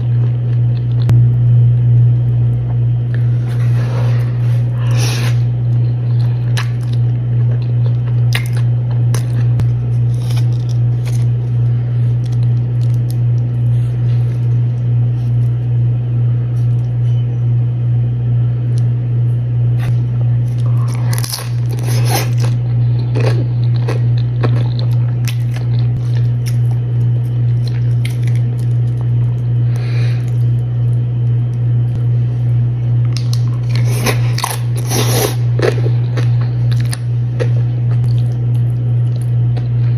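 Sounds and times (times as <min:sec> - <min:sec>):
loud steady low hum: 0:00.0 - 0:39.9
crunchy chewing of chips: 0:03.1 - 0:15.7, 0:19.8 - 0:31.4, 0:33.0 - 0:39.9.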